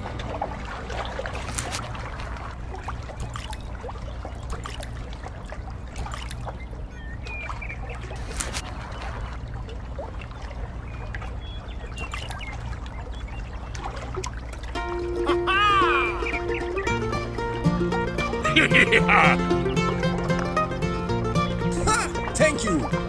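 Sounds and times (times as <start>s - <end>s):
water trickling and splashing: 0.0s - 23.0s
small clicks: 8.2s - 8.6s.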